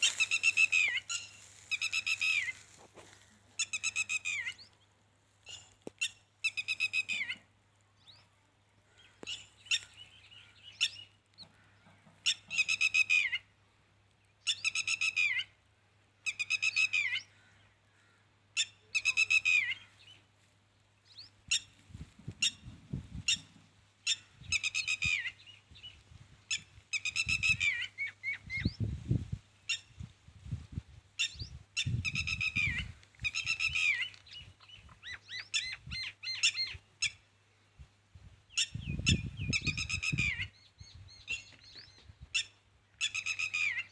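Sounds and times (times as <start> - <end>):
bird calling: 0.0 - 4.7, 31.2 - 37.2.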